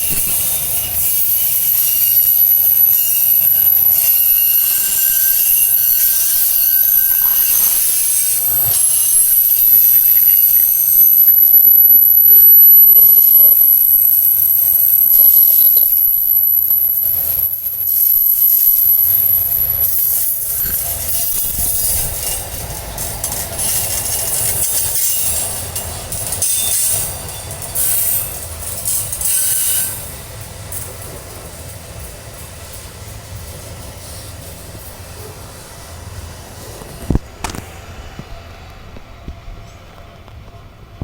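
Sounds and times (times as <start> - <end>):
high-pitched wheel screech: 0.0 - 30.3
train wheels rumbling on rails: 0.0 - 41.0.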